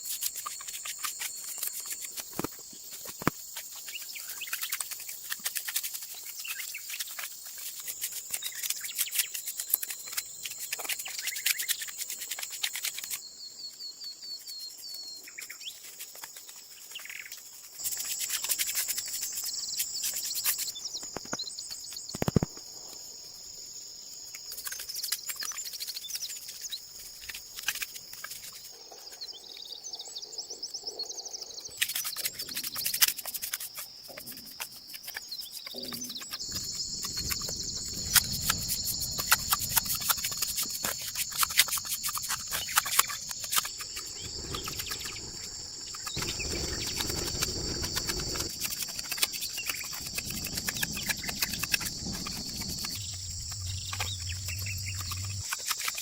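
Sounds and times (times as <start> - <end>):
insect chirring: 0.0 - 56.0
rumble of noise: 49.8 - 55.5.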